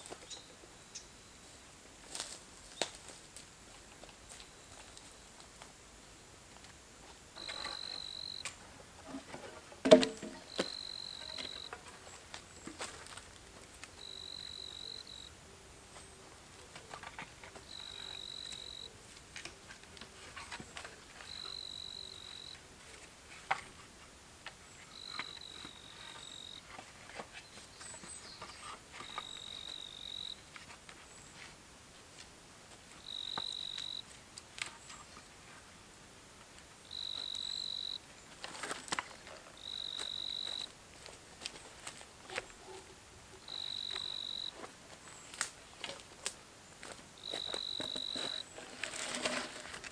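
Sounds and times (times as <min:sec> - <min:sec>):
insect calling high-pitched: 0:07.4 - 0:08.5, 0:33.0 - 0:34.0, 0:36.9 - 0:38.0, 0:43.5 - 0:44.6.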